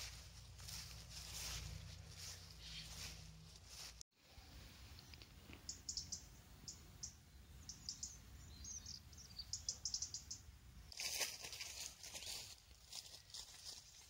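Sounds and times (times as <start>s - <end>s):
small birds chirping: 0.0s - 4.0s, 4.9s - 10.6s.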